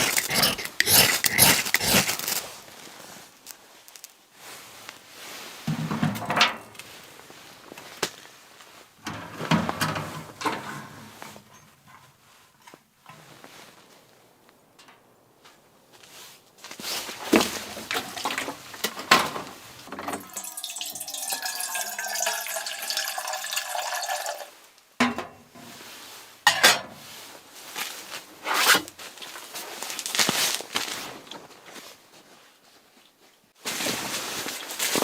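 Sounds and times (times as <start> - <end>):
objects clattering: 0.0 - 2.5, 5.7 - 6.9, 9.0 - 12.1, 17.2 - 25.5
liquid pouring into container: 17.9 - 18.5, 20.1 - 24.5.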